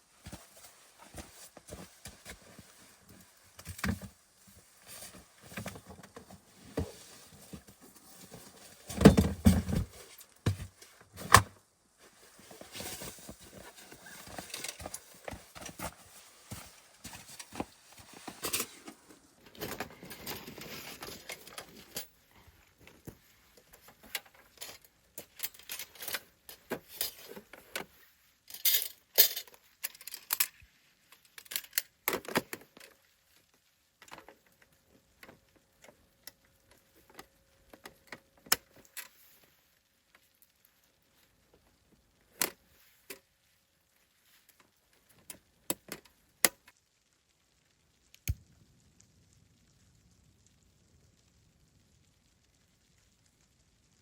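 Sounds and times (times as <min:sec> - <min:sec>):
small metal objects clinking: 0:28.4 - 0:30.6.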